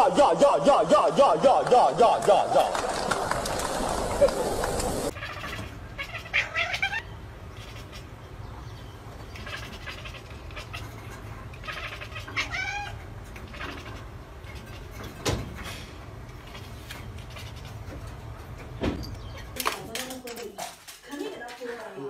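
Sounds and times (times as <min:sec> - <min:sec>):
cat meowing: 0:05.1 - 0:08.1, 0:09.3 - 0:14.9, 0:16.4 - 0:17.9.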